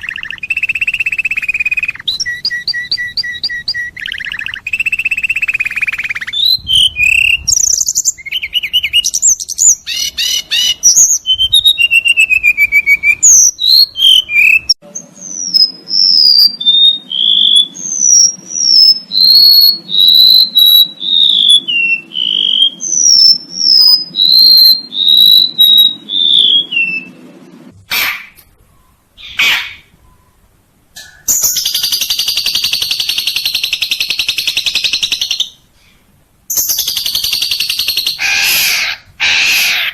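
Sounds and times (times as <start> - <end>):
falling whistled bird notes: 0.0 - 27.2
songbird twittering: 0.0 - 27.2, 27.9 - 35.7, 36.5 - 39.9
buzzing bird trill: 0.0 - 27.3, 31.2 - 35.6
faint low hum: 0.0 - 39.9
harsh bird calls: 0.0 - 39.9.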